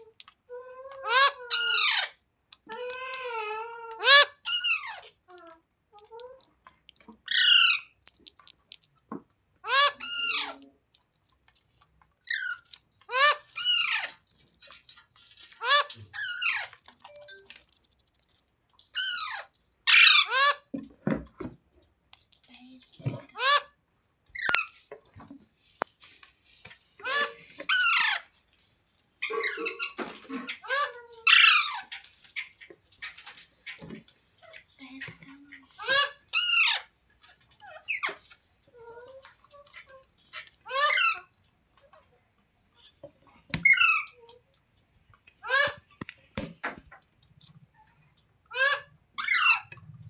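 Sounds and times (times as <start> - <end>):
soft parrot chatter: 0.0 - 8.7, 9.6 - 10.9, 12.2 - 20.7, 26.9 - 28.4, 29.2 - 42.2, 45.3 - 46.0
parakeet squawking: 4.0 - 5.1, 9.6 - 10.6, 15.6 - 17.6, 19.0 - 20.6, 27.0 - 28.2, 45.4 - 45.8.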